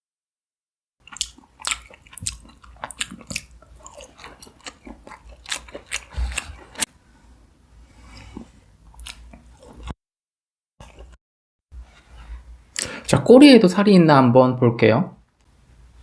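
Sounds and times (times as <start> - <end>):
chewing: 1.0 - 6.9, 8.0 - 10.0, 10.8 - 11.2.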